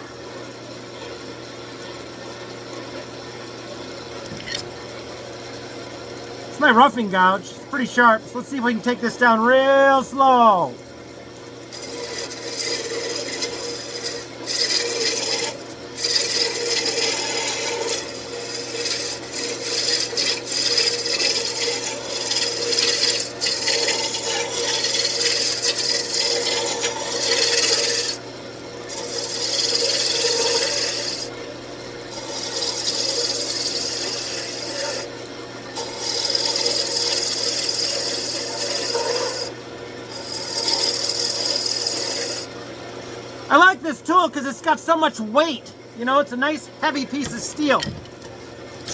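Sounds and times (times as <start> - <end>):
gouge cutting spinning wood: 11.7 - 28.2, 28.9 - 31.3, 32.1 - 35.1, 35.8 - 42.6
lathe motor humming: 11.7 - 28.2, 32.4 - 35.1.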